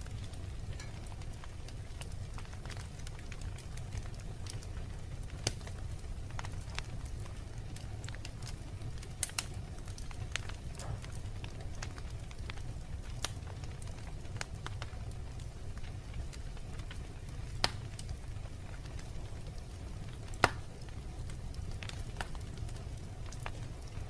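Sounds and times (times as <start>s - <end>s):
fire low rumble: 0.0s - 24.0s
wood fire crackling and popping: 0.0s - 24.0s.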